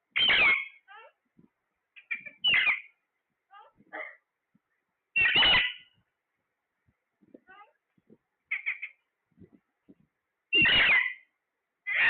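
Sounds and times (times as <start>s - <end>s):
parrot soft chirps: 0.1s - 1.2s, 2.0s - 3.8s, 5.2s - 6.0s, 8.5s - 9.1s, 10.5s - 11.3s
parrot harsh calls: 0.2s - 1.2s, 2.0s - 2.9s, 5.2s - 6.0s, 8.5s - 9.0s, 10.5s - 12.0s.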